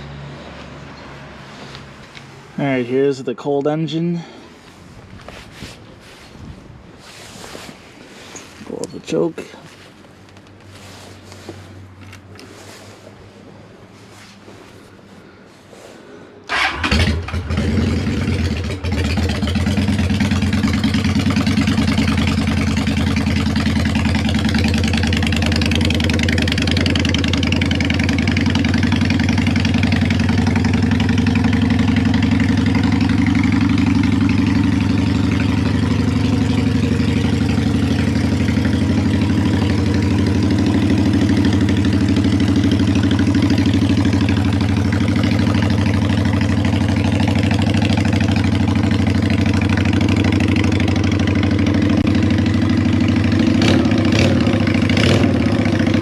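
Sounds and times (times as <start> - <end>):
motorcycle engine starting and idling: 16.4 - 56.0.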